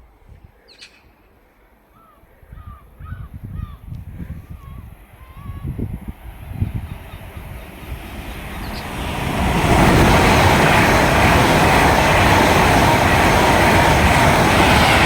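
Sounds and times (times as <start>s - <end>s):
electric train passing at speed: 4.9s - 15.0s.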